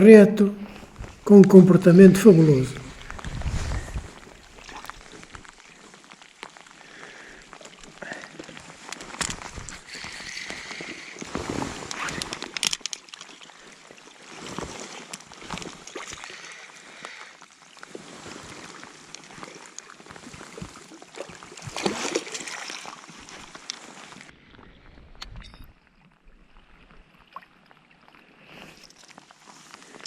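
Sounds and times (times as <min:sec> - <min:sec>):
water sloshing and splashing: 0:02.8 - 0:24.3.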